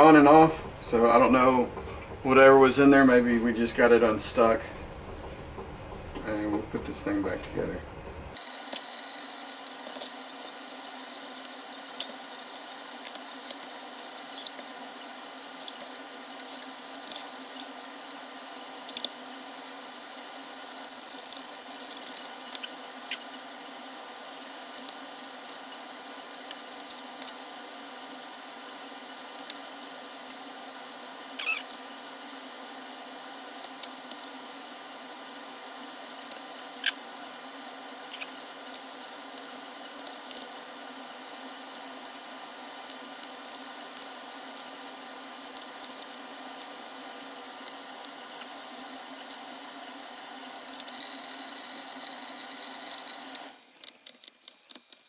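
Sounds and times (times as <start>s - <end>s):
steady hiss: 6.4s - 54.6s
clicks of plastic parts: 52.0s - 55.0s.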